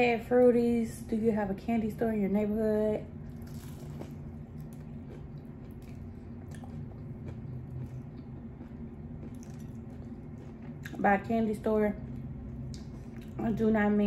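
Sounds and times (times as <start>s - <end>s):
steady low hum: 0.0s - 14.0s
person chewing food: 3.2s - 11.0s, 12.0s - 13.4s.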